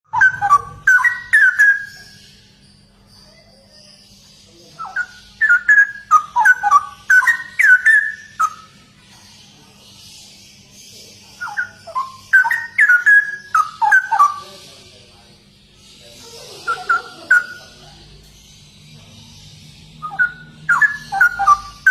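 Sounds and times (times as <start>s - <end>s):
bird singing whistled phrases: 0.1s - 2.5s, 4.7s - 8.8s, 11.4s - 14.6s, 16.6s - 17.8s, 20.0s - 21.9s.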